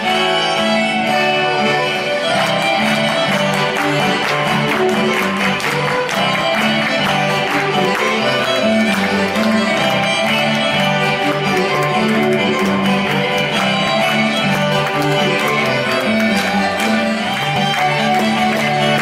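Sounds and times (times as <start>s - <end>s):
plucked strings: 0.0s - 19.0s
violin melody: 0.0s - 19.0s.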